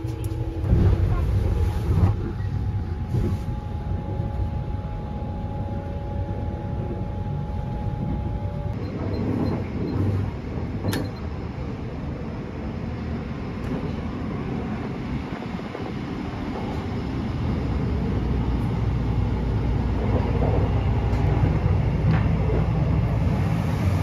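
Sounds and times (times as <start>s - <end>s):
train rumble inside compartment: 0.0s - 24.0s.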